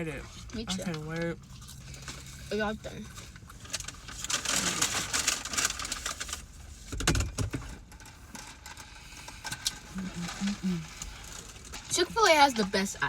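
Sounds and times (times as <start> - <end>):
rustling and crackling clicks: 3.1 - 12.8.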